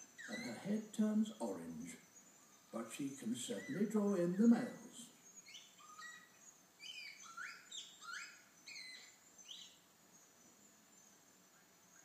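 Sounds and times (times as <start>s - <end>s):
parrot calling: 0.0s - 2.0s, 2.7s - 9.7s.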